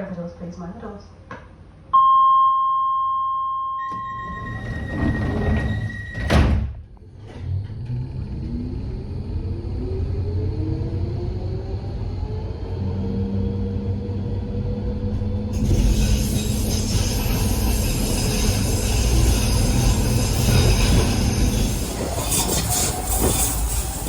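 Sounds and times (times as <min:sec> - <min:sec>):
train motor tone: 0:03.7 - 0:06.5, 0:15.0 - 0:24.0
train wheel and rail noise: 0:03.9 - 0:24.0
rail clicks: 0:15.6 - 0:24.0.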